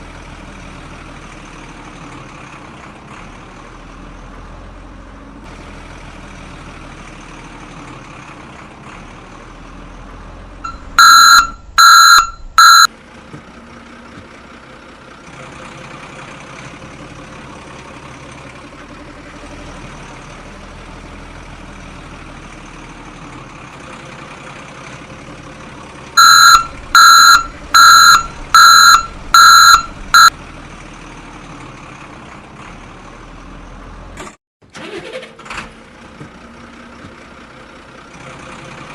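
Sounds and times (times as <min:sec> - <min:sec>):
horn beeping: 0:10.6 - 0:12.9, 0:26.2 - 0:30.3.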